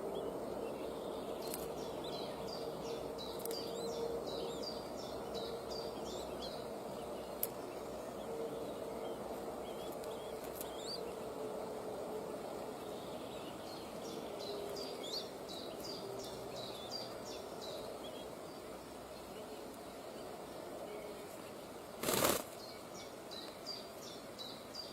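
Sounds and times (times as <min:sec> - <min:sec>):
bird chirping: 0:00.0 - 0:11.4, 0:12.4 - 0:24.9
faint hum: 0:00.0 - 0:24.9
outdoor hiss: 0:09.2 - 0:24.9.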